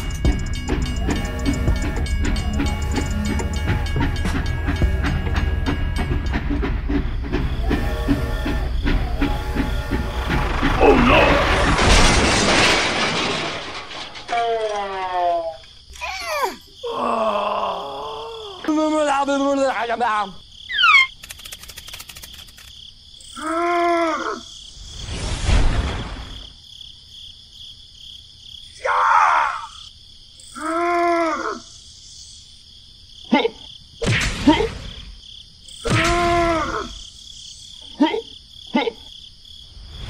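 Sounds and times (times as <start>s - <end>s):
crickets chirring: 0.0s - 40.0s
cartoon groans of effort: 16.0s - 18.7s, 23.4s - 24.5s, 30.6s - 31.7s, 35.8s - 37.0s.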